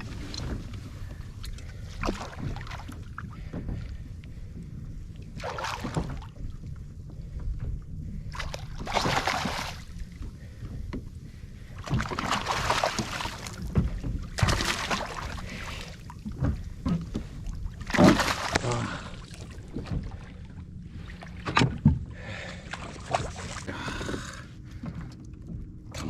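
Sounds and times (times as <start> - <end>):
water splashing around kayak: 0.0 - 25.1
low rumble: 0.0 - 26.0.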